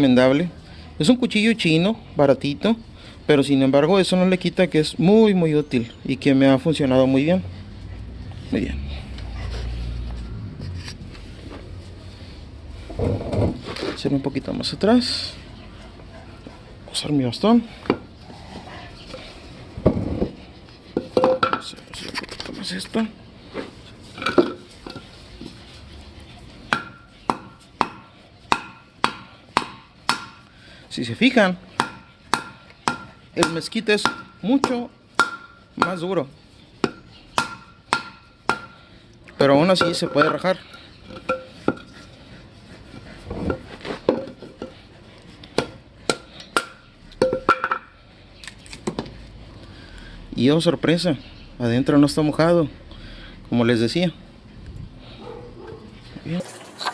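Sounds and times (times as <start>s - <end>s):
baton knocking knife through wood: 26.7s - 30.4s, 31.8s - 36.0s, 36.8s - 38.8s.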